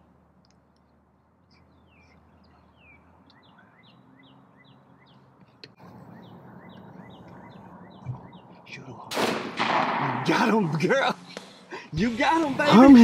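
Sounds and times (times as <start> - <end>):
faint high bird chirps: 0.6 - 8.7.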